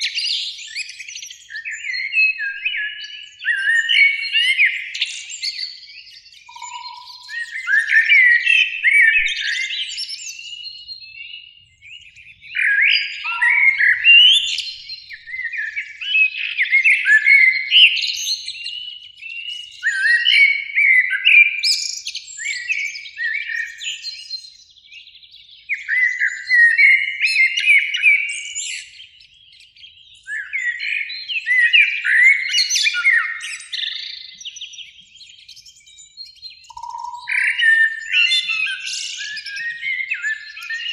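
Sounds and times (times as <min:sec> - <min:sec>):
blackbirds singing: 0:00.0 - 0:40.9.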